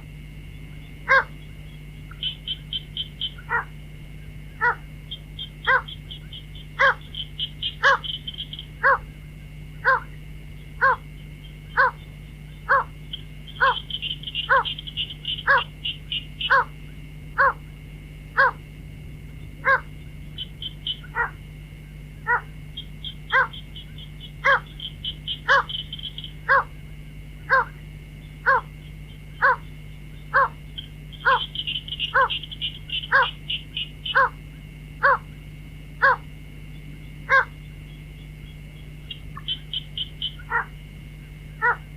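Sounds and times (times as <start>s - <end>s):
steady low hum: 0.0s - 41.9s
hollow repeated bird call: 0.1s - 18.7s, 19.3s - 41.9s
high fast bird chattering: 2.1s - 3.7s, 4.6s - 9.0s, 12.7s - 16.7s, 22.3s - 26.8s, 29.3s - 29.7s, 30.3s - 34.4s, 39.1s - 40.7s.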